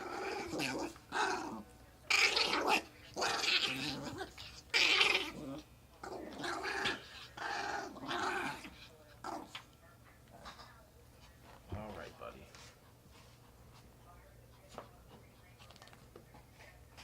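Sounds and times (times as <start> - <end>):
small dog growling and yowling: 0.0 - 9.7.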